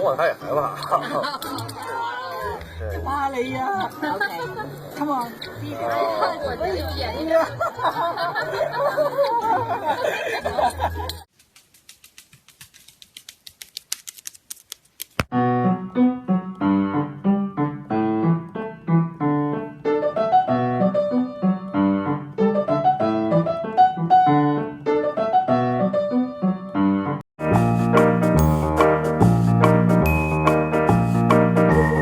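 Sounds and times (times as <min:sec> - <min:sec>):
piano music: 0:15.3 - 0:32.0.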